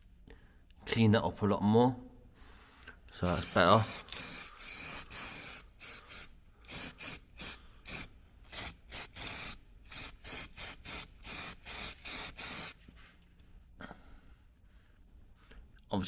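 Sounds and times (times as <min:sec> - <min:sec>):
filing strokes on steel: 0:03.2 - 0:12.8.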